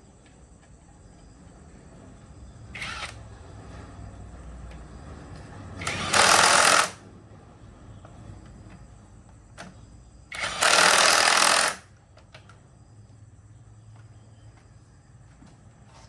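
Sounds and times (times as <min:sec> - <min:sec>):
power tool bursts: 0:02.8 - 0:03.2, 0:05.8 - 0:07.0, 0:10.3 - 0:11.9.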